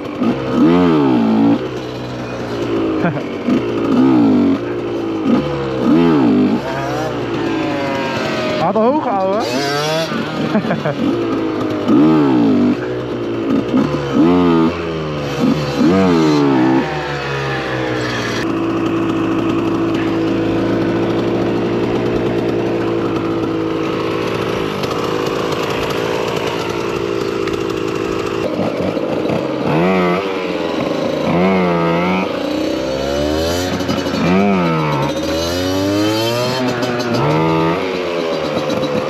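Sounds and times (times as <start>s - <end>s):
two-stroke engine revving: 0.0s - 39.0s.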